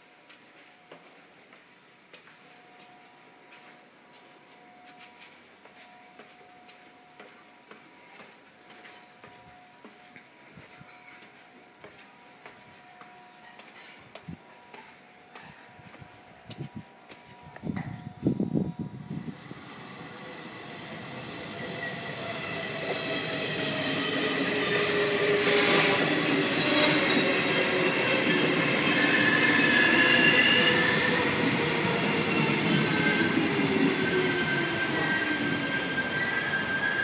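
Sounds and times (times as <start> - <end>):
train coaches rolling past: 18.2 - 37.0
high steady squealing tones: 18.7 - 37.0
brief hiss: 25.4 - 26.1.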